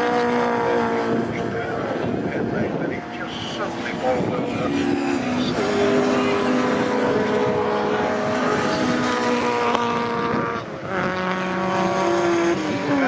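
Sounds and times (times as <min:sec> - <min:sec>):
racing car engines passing: 0:00.0 - 0:13.0.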